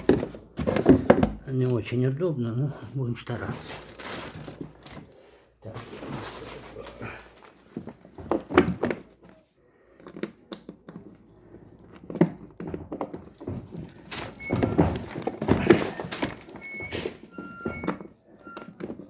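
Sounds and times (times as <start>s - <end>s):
machine parts knocking and clunking: 12.1s - 19.0s.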